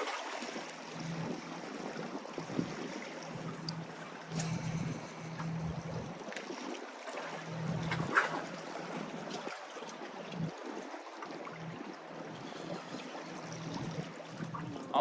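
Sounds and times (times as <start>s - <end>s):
moving water: 0.0s - 15.0s
wind rumble on microphone: 1.0s - 6.4s, 13.6s - 15.0s.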